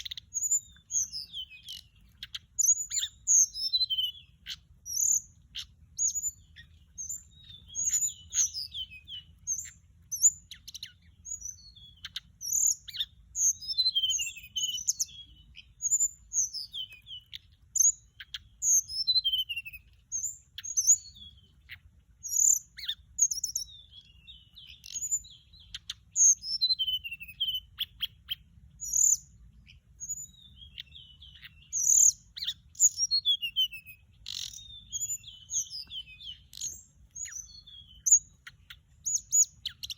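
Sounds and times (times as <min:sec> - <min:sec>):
bird song whistles and trills: 0:00.0 - 0:39.9.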